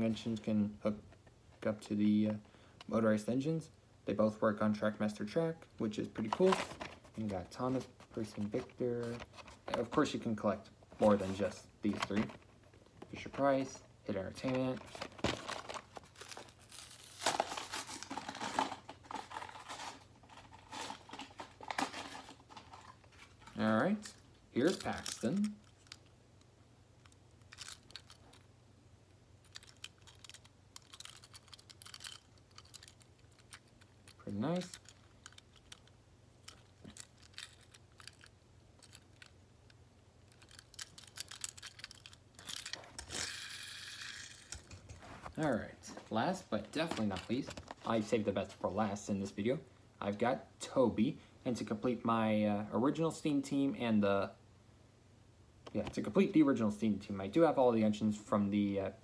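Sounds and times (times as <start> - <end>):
packaging crinkling and tearing: 14.4 - 23.6
plastic toy train clicking: 40.3 - 44.7.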